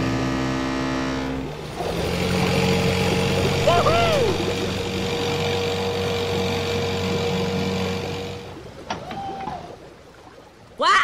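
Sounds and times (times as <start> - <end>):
vehicle engine running: 0.0 - 8.6
gliding voice-like sound: 3.6 - 4.6.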